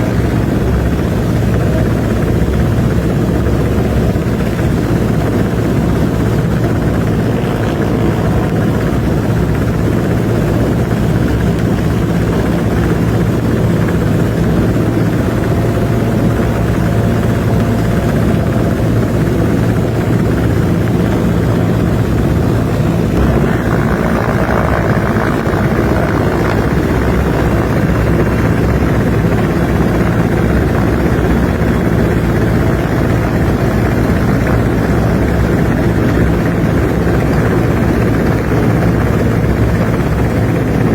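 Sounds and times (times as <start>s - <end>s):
helicopter rotor and engine: 0.0s - 40.9s.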